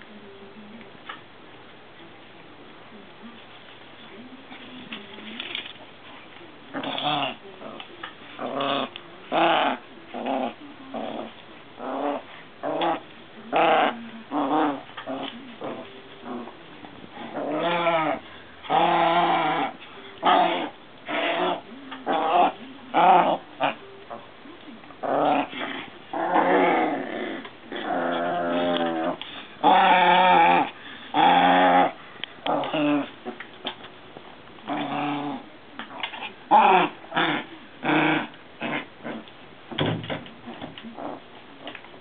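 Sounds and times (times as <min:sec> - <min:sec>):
puppies growling and yipping: 0:06.7 - 0:24.2, 0:25.0 - 0:33.8, 0:34.6 - 0:39.3, 0:40.4 - 0:41.8.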